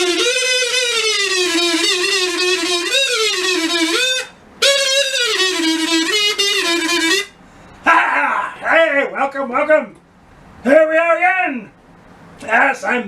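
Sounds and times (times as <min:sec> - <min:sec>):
buzzy sliding melody: 0:00.0 - 0:07.4.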